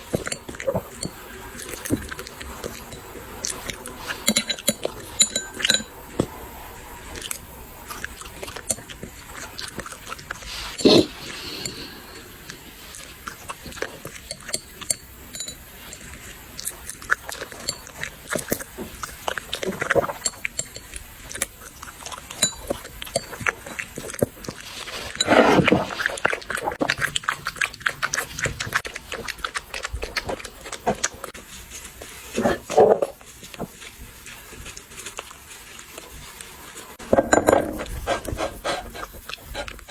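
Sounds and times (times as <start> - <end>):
bowl clicking and clinking: 0.0 - 6.3, 13.7 - 16.1, 37.1 - 38.0
dogs chewing: 0.0 - 39.9.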